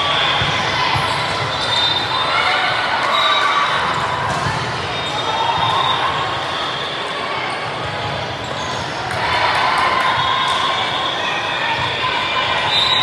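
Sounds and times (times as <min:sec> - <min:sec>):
crowd murmur in gymnasium: 0:00.0 - 0:13.0.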